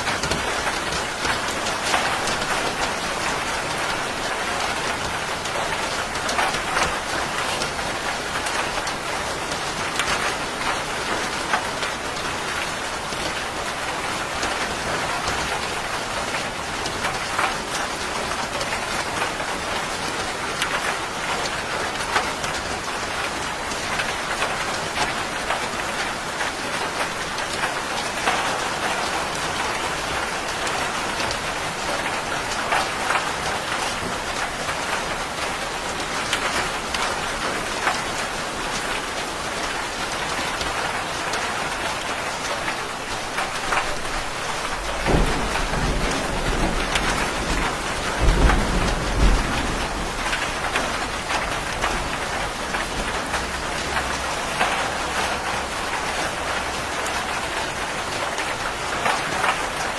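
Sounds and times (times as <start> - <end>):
steady rain hiss: 0.0 - 59.9
sharp raindrop strikes: 43.3 - 55.1.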